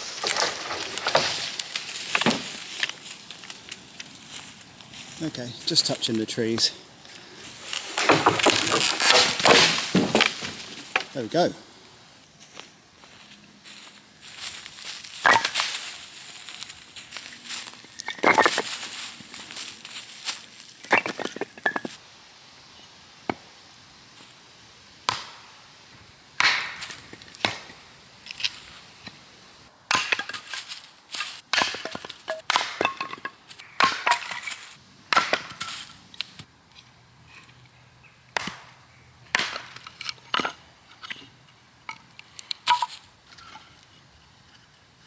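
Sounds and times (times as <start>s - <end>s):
dead wood snapping: 7.7s - 11.2s, 26.4s - 27.8s.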